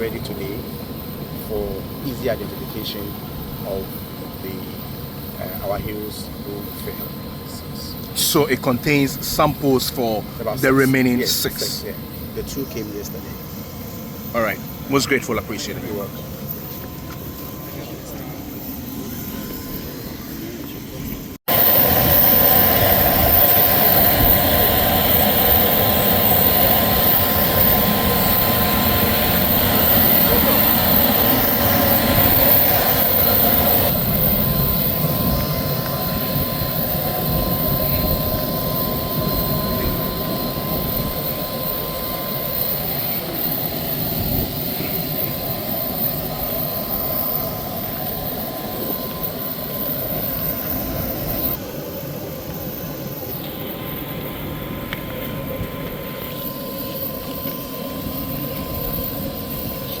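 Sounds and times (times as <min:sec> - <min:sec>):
mechanical drone: 0:00.0 - 1:00.0
thin whistle-like tone: 0:12.4 - 0:54.4.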